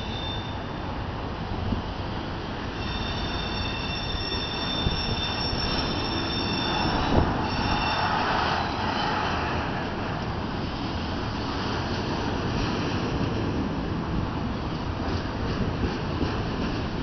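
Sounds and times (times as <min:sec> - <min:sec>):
train wheels squealing on rail: 0:00.0 - 0:01.2, 0:02.2 - 0:09.9
rumble of train cars: 0:00.0 - 0:17.0.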